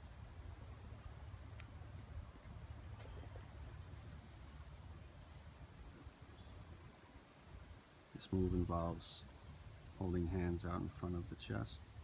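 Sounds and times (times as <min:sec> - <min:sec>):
high bird chirps: 0:02.8 - 0:07.2.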